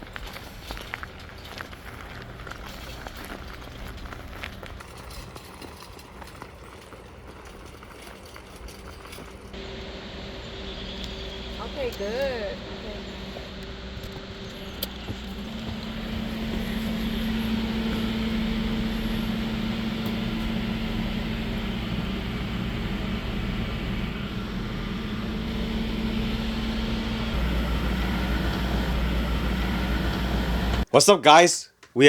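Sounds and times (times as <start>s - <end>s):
constant low hum: 0.0s - 30.9s
car road and engine rumble: 9.3s - 30.9s.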